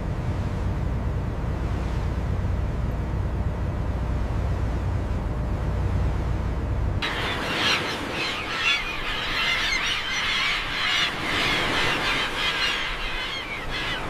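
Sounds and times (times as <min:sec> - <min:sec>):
flock of birds squawking: 0:07.0 - 0:14.0.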